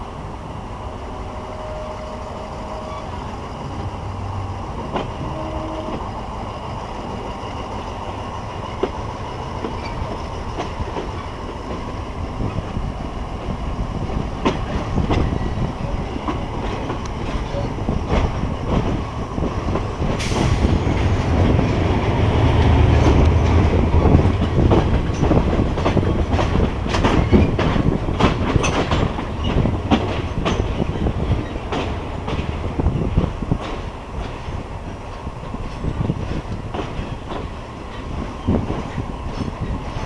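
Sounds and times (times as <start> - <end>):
train rumbling along track: 0.0 - 40.0
wheels clacking over rail joints: 19.7 - 34.6.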